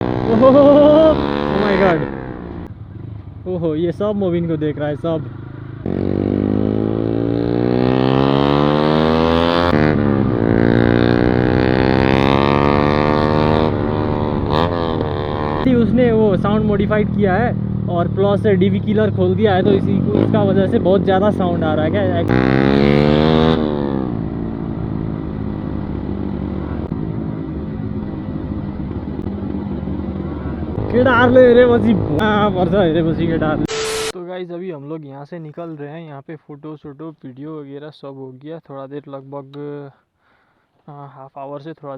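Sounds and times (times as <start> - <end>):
motorcycle engine revving: 0.0 - 3.6, 4.3 - 34.2.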